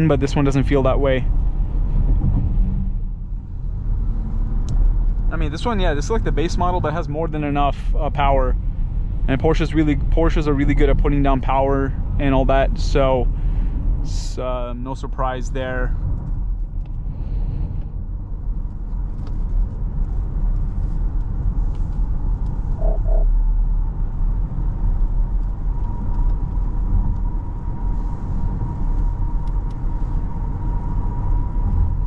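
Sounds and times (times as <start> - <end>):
road and tyre noise in car: 0.0 - 32.0
faint high tone: 22.8 - 23.4.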